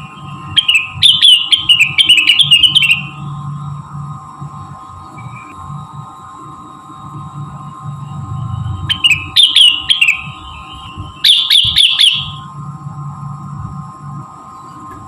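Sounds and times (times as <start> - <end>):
steady background hum: 0.0 - 15.0
bird song chirps: 0.4 - 3.2, 8.9 - 10.4, 11.2 - 12.4.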